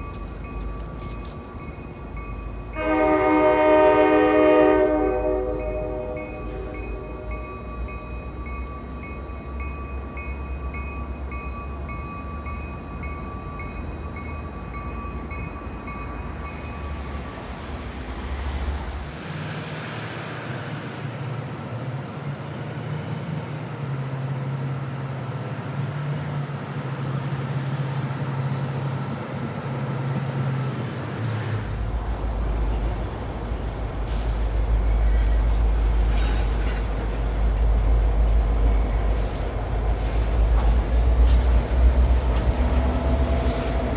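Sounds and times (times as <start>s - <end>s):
diesel locomotive rumbling: 0.0s - 43.9s.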